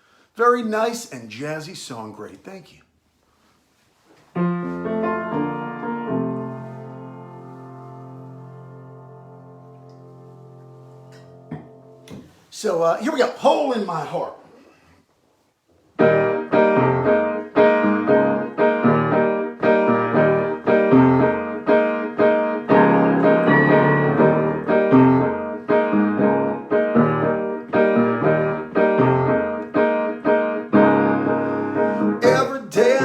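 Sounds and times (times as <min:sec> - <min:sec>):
solo piano chords: 0:04.4 - 0:12.1, 0:16.0 - 0:33.0.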